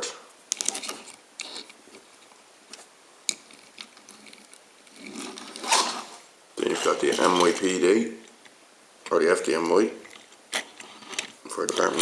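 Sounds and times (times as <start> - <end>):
metal toy cars clicking: 6.6 - 7.8.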